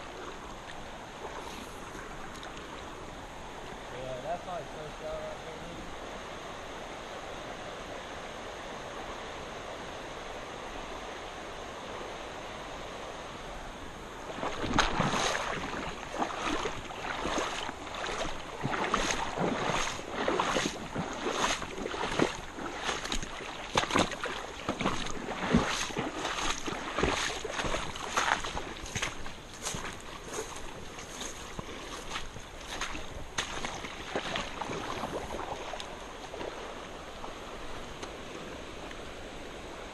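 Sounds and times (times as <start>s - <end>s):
creek water flowing: 0.0s - 39.9s
splashing steps in water: 14.3s - 36.8s.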